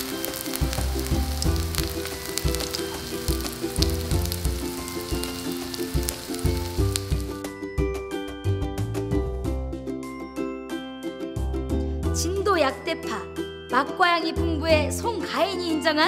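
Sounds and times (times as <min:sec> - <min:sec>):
pancake sizzling in hot oil: 0:00.0 - 0:07.5
light ukulele tune: 0:10.7 - 0:12.6.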